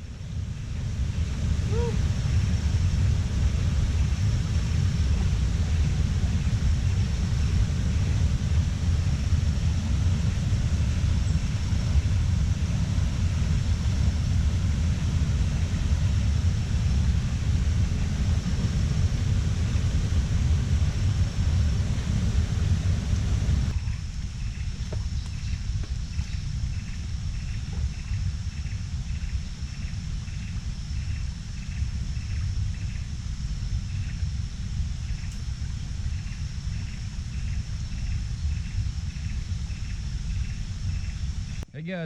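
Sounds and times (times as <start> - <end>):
wind buffeting microphone: 0.0 - 41.6
faint high-pitched hum: 0.0 - 42.0.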